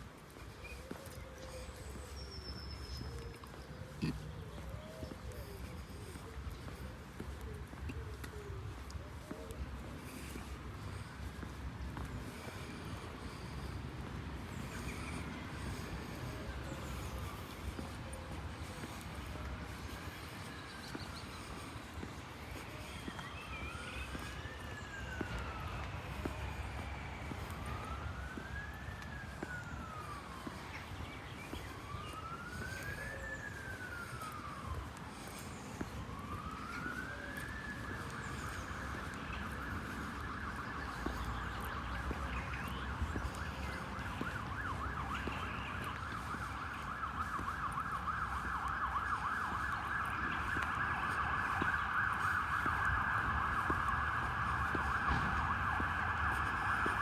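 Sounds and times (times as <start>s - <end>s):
emergency vehicle siren: 0.0s - 57.0s
low traffic noise: 0.0s - 57.0s.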